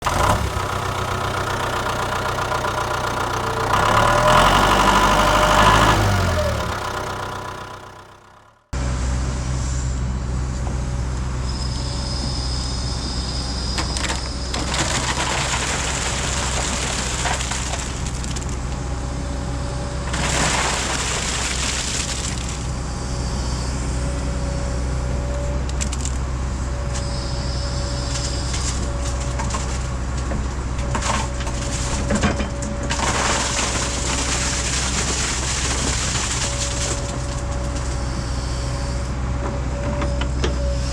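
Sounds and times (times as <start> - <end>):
heavy diesel engine revving: 0.0 - 9.5.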